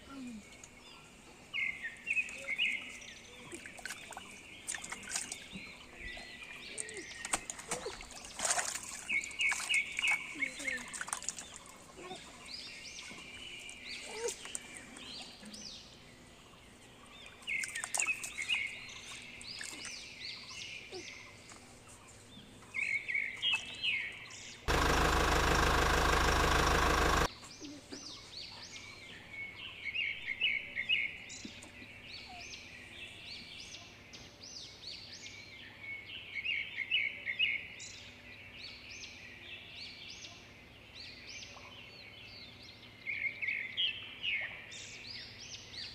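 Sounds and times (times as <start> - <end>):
birds chirping: 0.1 - 33.8
loud steady noise: 24.7 - 27.3.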